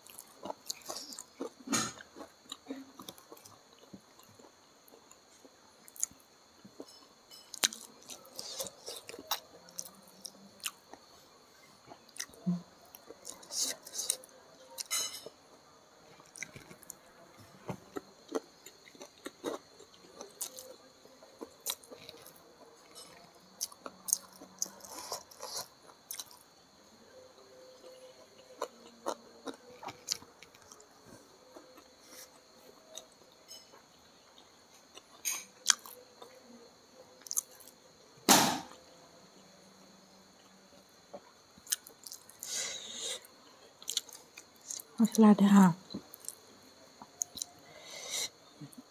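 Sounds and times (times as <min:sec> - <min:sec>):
chewing with wet mouth clicks: 0:21.4 - 0:26.4, 0:35.0 - 0:36.3, 0:37.2 - 0:37.7, 0:43.8 - 0:44.9, 0:47.2 - 0:47.5.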